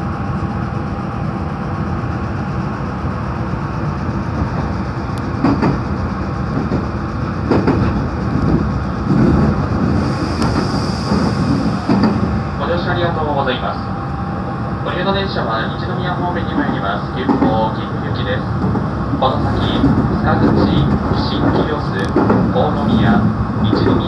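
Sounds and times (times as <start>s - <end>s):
train wheels rumbling on track: 0.0s - 24.0s
rail joint clacks: 4.1s - 13.9s, 14.9s - 24.0s.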